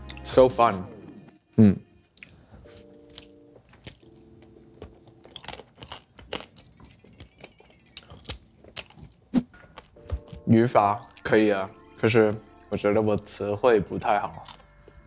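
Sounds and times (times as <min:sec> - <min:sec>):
chewing with mouth clicks: 0:02.1 - 0:11.2, 0:14.3 - 0:15.0.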